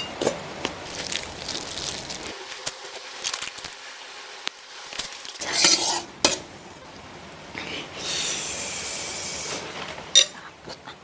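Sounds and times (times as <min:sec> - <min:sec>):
spoon scraping in a bowl: 0:05.4 - 0:06.4.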